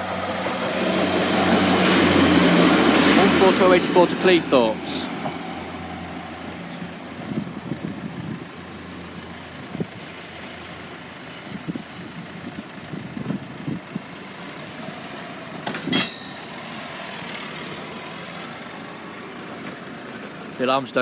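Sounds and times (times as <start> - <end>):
diesel train engine humming: 0.0 - 21.0
metallic clank with ring: 15.7 - 16.5.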